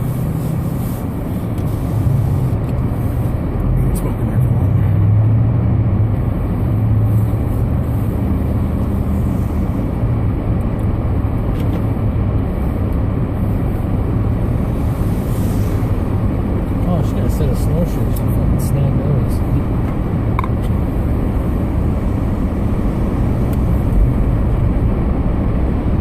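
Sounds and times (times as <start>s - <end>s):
car engine and drivetrain hum: 0.0s - 26.0s
tyres rushing on snowy road: 0.0s - 26.0s.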